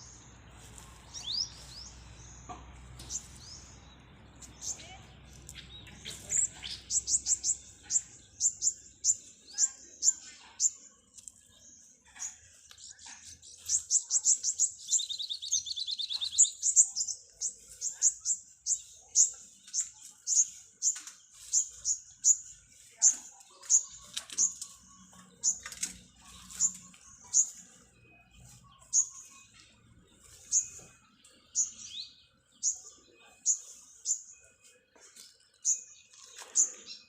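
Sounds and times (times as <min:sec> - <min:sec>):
small birds chirping: 0:00.0 - 0:37.0
rapid bird trill: 0:13.4 - 0:34.5.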